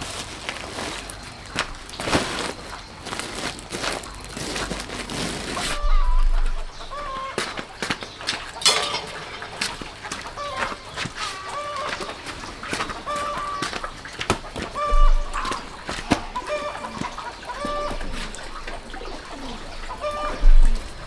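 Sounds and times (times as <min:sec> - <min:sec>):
chickens clucking: 0:05.6 - 0:21.0.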